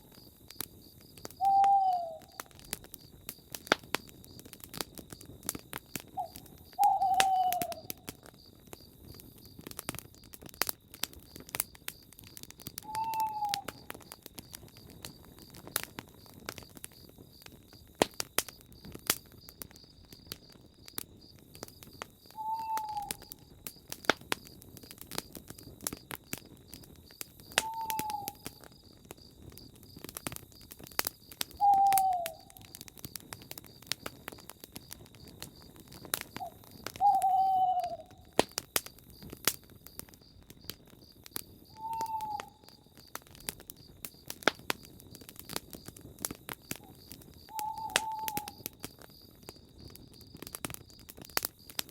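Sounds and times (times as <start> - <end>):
campfire crackling: 0.0 - 51.9
owl hooting: 1.4 - 2.4, 6.1 - 8.0, 12.8 - 13.8, 22.4 - 23.3, 27.6 - 28.5, 31.6 - 32.7, 36.4 - 38.3, 41.7 - 42.7, 47.5 - 48.6.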